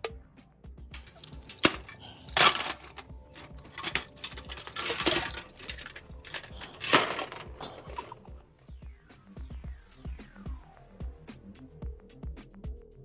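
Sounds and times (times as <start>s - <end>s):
small hard objects clattering: 1.0s - 8.4s.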